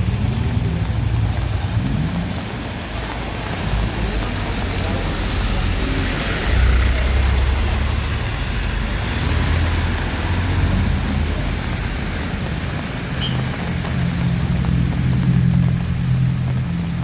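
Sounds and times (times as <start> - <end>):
deep rumble: 0.0 - 12.8
heavy rain: 0.0 - 17.0.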